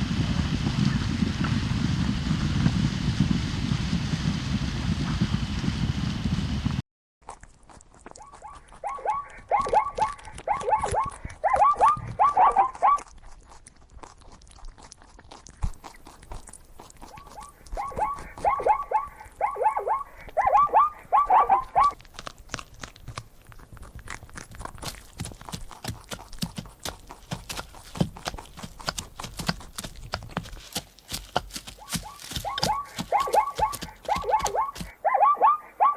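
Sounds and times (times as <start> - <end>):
zebra barking: 8.2 - 13.0, 17.1 - 22.0, 31.7 - 35.9
sharp clicks: 25.1 - 35.0.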